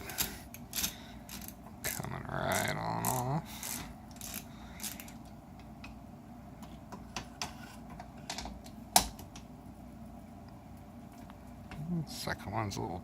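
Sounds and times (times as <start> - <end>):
ratchet clicking: 0.1 - 5.2.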